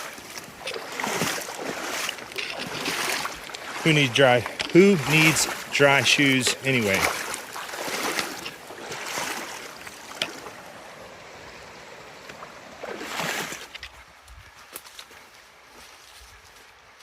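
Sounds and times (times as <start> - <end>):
feet splashing through water: 0.0 - 16.6.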